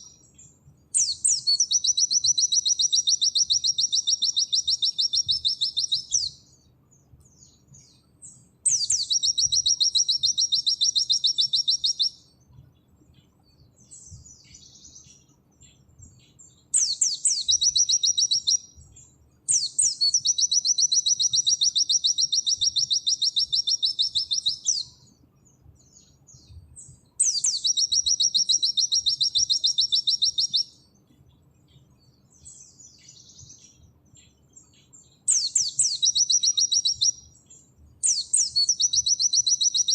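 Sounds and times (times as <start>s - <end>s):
soft bird chirps: 0.0s - 39.9s.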